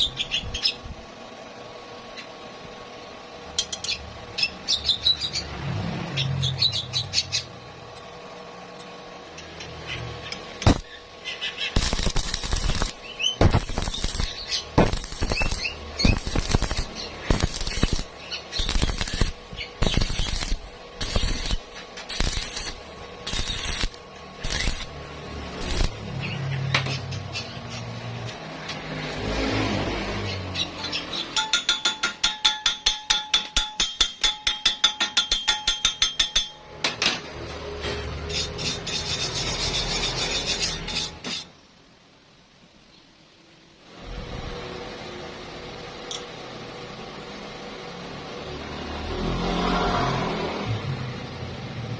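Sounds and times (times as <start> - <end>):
welding arc crackling: 9.3 - 29.2
rasping strokes on metal: 11.7 - 26.0, 37.8 - 41.5.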